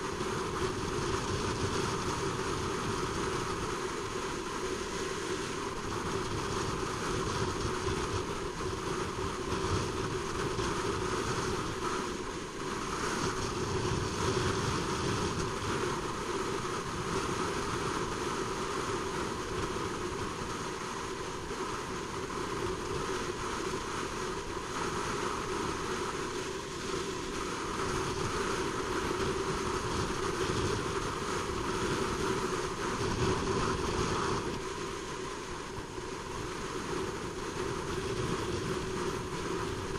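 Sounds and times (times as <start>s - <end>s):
wind rushing on microphone: 0.0s - 39.9s.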